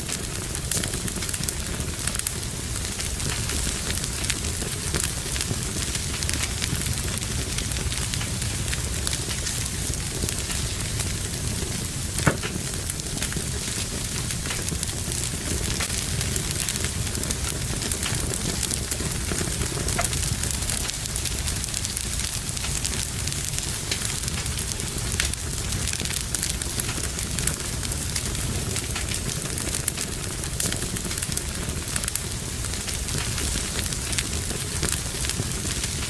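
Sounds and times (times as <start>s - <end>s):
fire crackling in fireplace: 0.0s - 36.0s.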